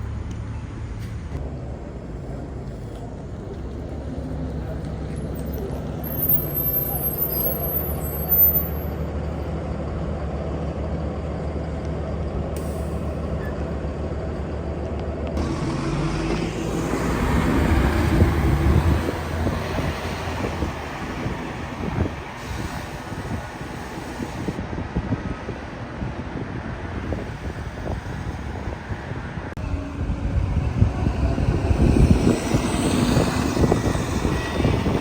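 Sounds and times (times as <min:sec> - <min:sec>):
bus engine drone: 0:00.0 - 0:35.0
vehicle passing close: 0:15.4 - 0:22.2, 0:29.6 - 0:35.0.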